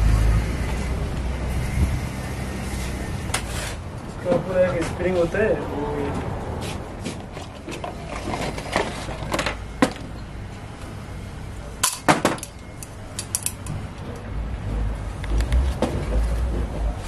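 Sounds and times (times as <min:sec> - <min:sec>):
hard objects clinking and knocking: 0:11.8 - 0:13.8.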